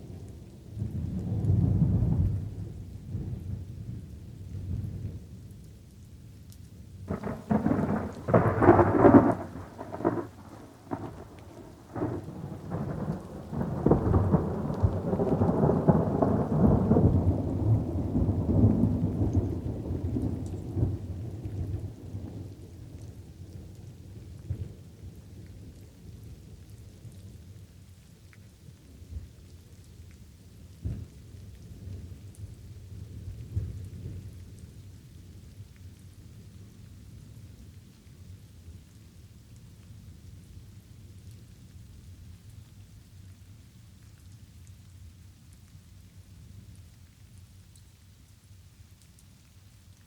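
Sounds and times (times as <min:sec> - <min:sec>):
light rain falling: 0:00.0 - 0:50.0
thunder cracks and rumble: 0:07.1 - 0:23.0.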